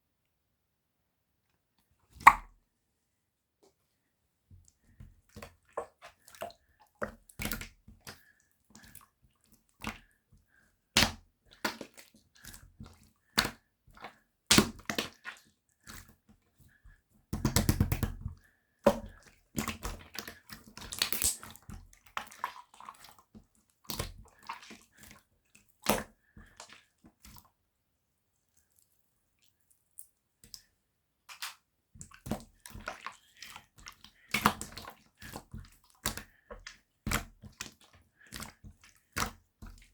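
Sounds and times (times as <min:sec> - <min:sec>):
slime squelching: 0:18.8 - 0:23.2, 0:23.8 - 0:25.2, 0:31.3 - 0:39.9.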